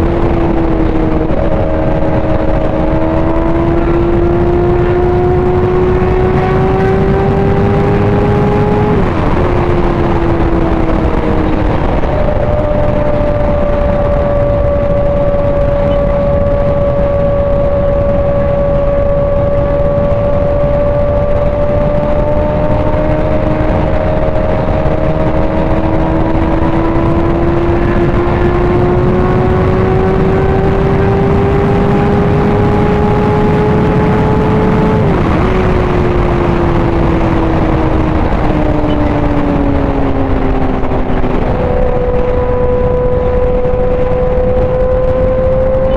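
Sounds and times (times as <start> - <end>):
motorcycle engine running: 0.0 - 45.9
wind rush on microphone: 0.0 - 45.9.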